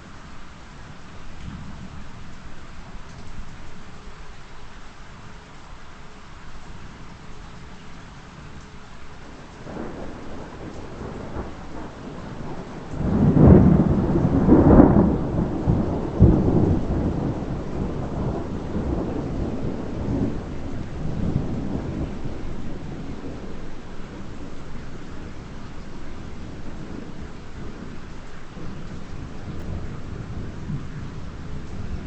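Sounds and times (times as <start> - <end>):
steady rain: 0.0 - 32.0
thunder crashing and rumbling: 9.6 - 32.0.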